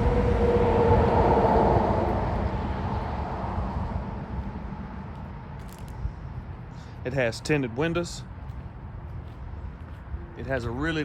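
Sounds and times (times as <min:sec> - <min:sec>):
passing vehicle rumbling: 0:00.0 - 0:10.4.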